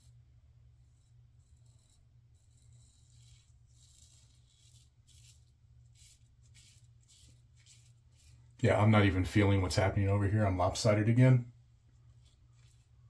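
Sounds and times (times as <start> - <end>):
low room hum: 0.0 - 13.0
soft rustles: 11.6 - 13.0.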